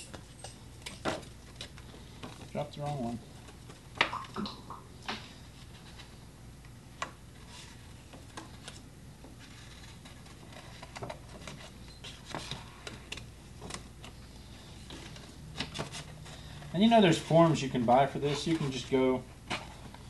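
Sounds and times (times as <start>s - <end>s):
paper rustling: 7.3s - 20.0s.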